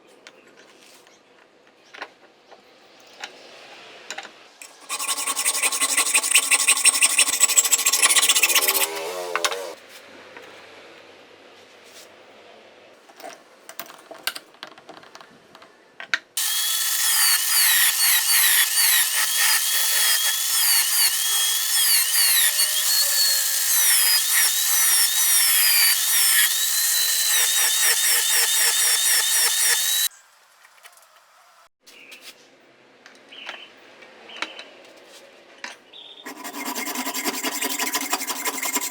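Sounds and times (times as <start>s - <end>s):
drill scraping on wood: 4.6s - 9.8s, 16.4s - 30.1s, 36.3s - 38.9s
electric drill whining: 4.6s - 9.8s, 16.4s - 30.1s.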